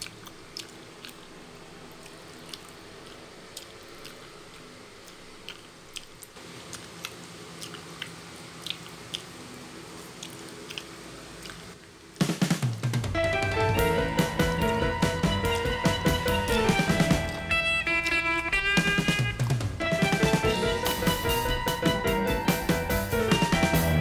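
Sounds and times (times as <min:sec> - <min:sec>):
person chewing noodles: 0:00.0 - 0:12.8
low background hum: 0:00.0 - 0:24.0.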